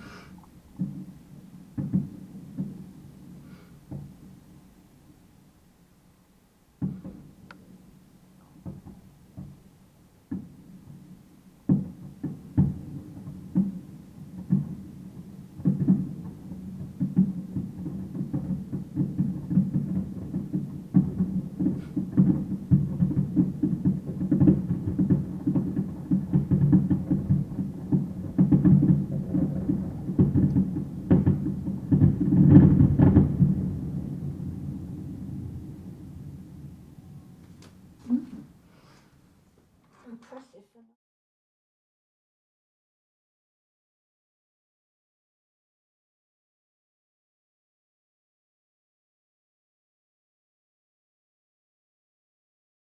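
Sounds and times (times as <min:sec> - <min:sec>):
fireworks exploding: 0:00.0 - 0:04.6, 0:10.3 - 0:38.7.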